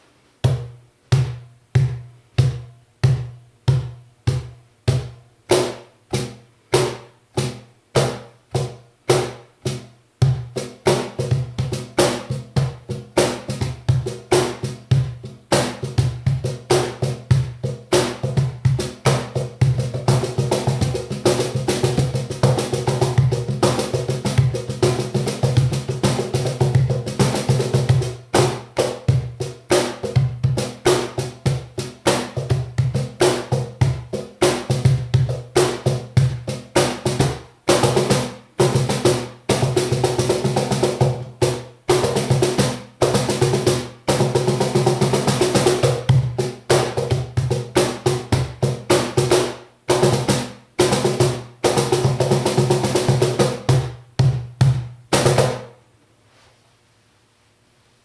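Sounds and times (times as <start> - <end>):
cajon drum groove: 0.4 - 55.8.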